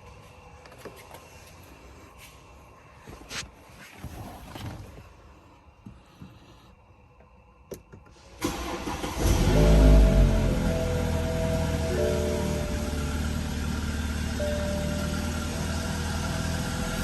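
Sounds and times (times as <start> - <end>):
car engine starting and idling: 7.8 - 17.0.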